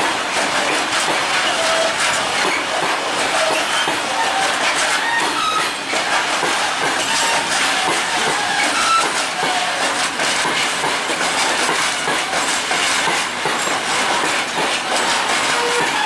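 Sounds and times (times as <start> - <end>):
train wheels clattering on rails: 0.0 - 16.0
short high squeals: 3.4 - 5.9, 8.4 - 9.3.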